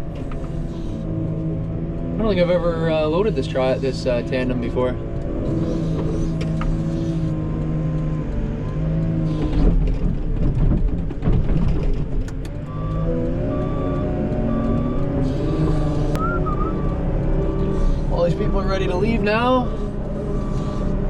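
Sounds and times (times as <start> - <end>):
diesel engine running under load: 0.0 - 21.0
loader bucket rumbling and knocks: 9.4 - 15.1
reversing alarm beeping: 12.6 - 21.0.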